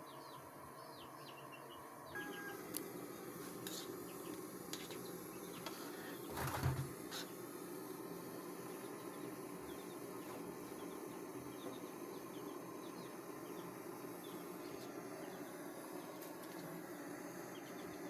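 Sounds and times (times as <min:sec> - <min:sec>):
faint bird chirps: 0:00.0 - 0:03.1
steady low hum: 0:00.0 - 0:18.0.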